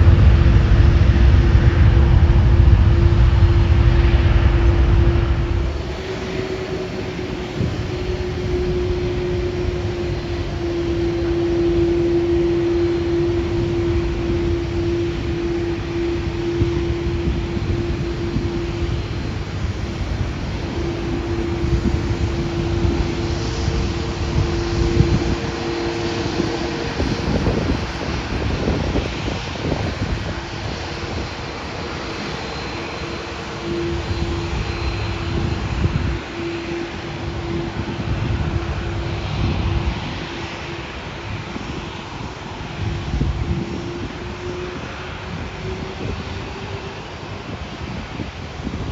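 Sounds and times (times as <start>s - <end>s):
jet airliner engines droning: 0.0s - 48.9s.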